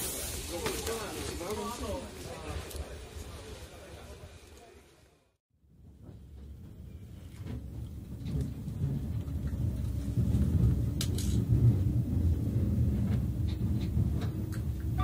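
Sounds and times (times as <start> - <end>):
train running rumble: 5.7 - 15.0.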